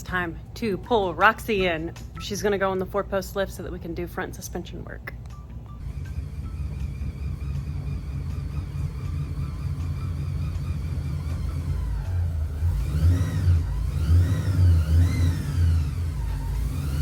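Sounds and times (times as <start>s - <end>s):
car engine idling and revving: 5.8s - 17.0s.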